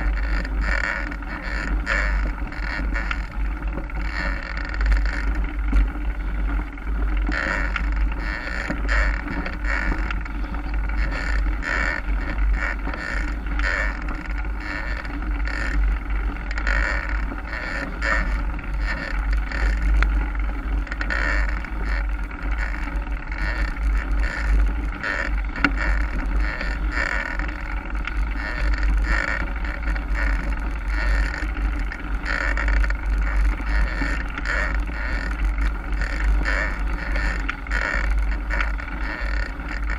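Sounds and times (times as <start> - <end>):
bike tyre noise: 0.0 - 39.9
wind rumble on microphone: 0.0 - 39.9.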